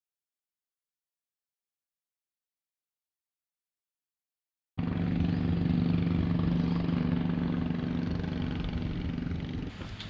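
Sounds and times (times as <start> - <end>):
engine running low drone: 4.8 - 10.0.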